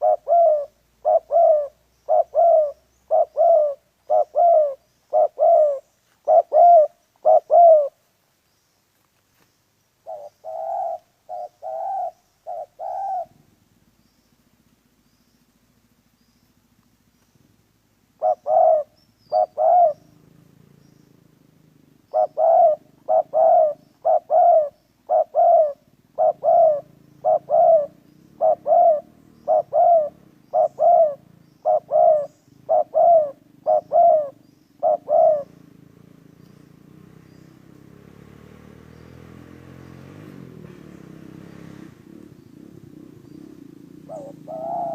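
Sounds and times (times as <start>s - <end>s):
dove cooing: 0.0s - 8.0s, 10.0s - 13.6s, 18.1s - 37.4s, 42.0s - 44.9s.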